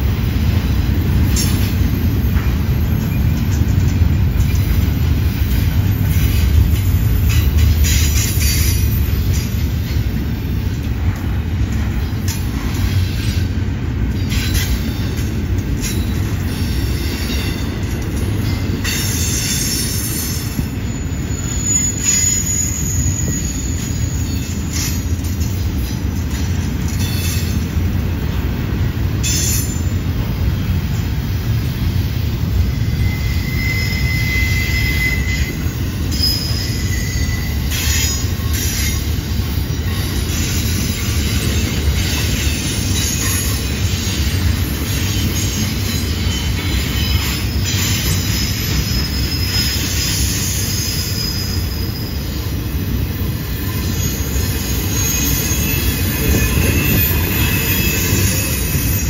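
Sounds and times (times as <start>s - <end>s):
freight train wheels rumbling on rail: 0.0s - 59.0s
wheel flanges squealing: 15.8s - 26.0s, 32.7s - 52.6s, 53.4s - 59.0s.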